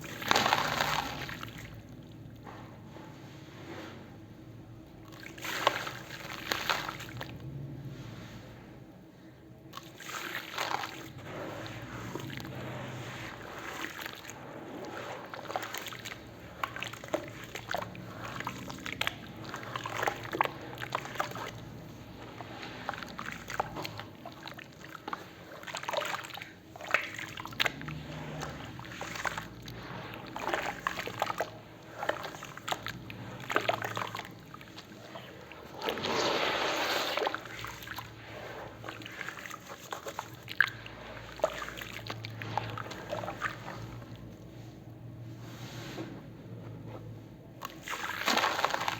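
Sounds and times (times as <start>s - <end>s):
cement sloshing and splattering: 0.0s - 4.3s, 5.0s - 8.7s, 9.4s - 46.0s, 47.4s - 48.9s.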